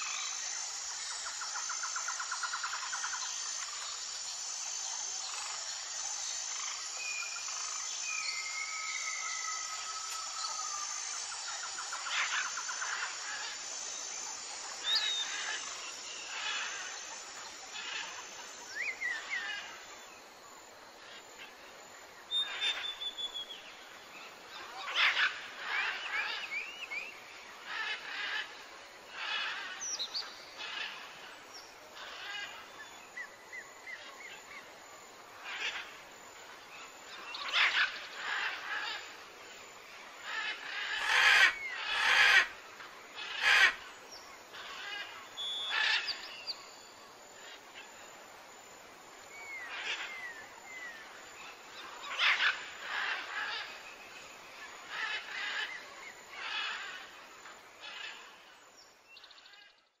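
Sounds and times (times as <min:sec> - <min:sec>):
faint background hiss: 0:00.0 - 1:00.0
birds calling: 0:40.2 - 0:42.6, 0:43.2 - 0:43.9.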